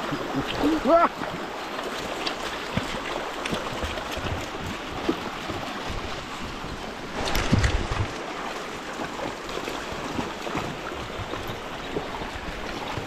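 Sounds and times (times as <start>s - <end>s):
stream water running: 0.0s - 13.0s.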